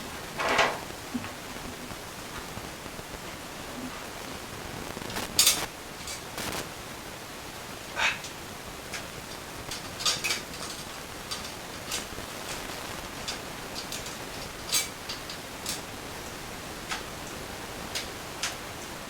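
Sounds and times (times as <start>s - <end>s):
steady hiss: 0.0s - 19.0s
light clicks and ticks: 8.2s - 18.9s.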